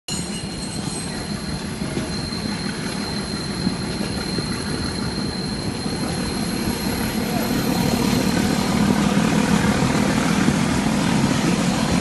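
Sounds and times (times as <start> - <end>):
thin high tone: 0.1 - 8.6.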